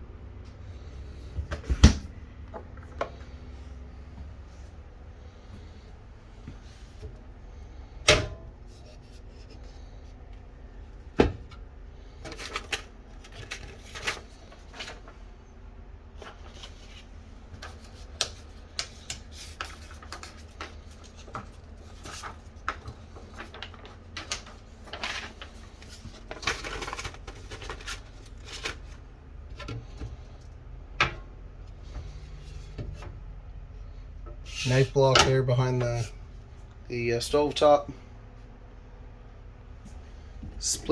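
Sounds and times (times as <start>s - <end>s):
low steady hum: 0.0s - 40.9s
cabinet doors opening and shutting: 1.4s - 2.8s.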